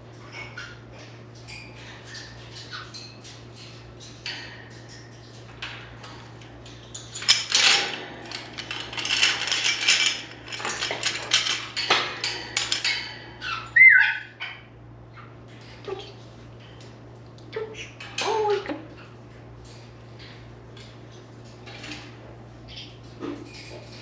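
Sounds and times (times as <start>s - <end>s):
hard objects clattering in cage: 0.1s - 24.0s
parrot whistle-like call: 13.8s - 14.2s.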